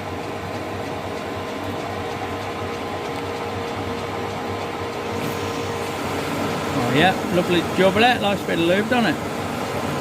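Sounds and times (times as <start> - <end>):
machine tool motor hum: 0.0 - 10.0.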